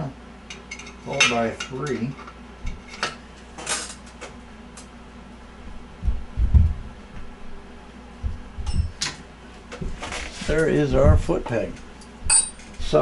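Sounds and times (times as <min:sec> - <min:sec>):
dull low knocks: 0:05.7 - 0:07.4, 0:08.2 - 0:09.0, 0:10.9 - 0:11.4
metal parts clinking: 0:12.3 - 0:12.8.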